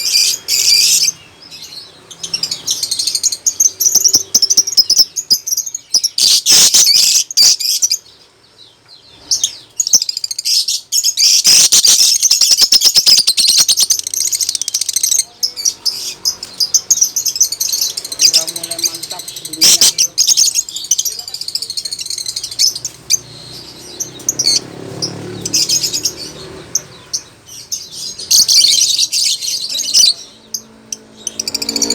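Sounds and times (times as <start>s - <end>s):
lovebird chattering chirps: 0.0s - 8.1s, 9.2s - 31.9s.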